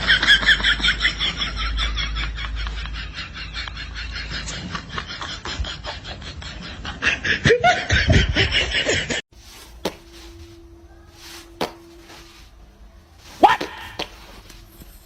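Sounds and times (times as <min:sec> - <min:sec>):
person laughing hard: 0:00.0 - 0:09.2
faint steady hum: 0:08.8 - 0:15.0.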